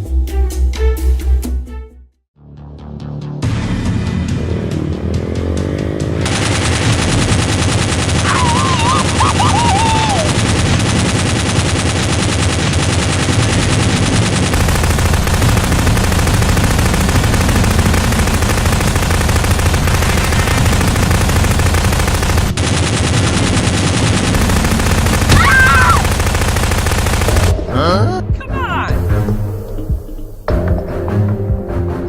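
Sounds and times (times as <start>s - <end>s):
rapid automatic gunfire: 6.2s - 27.6s.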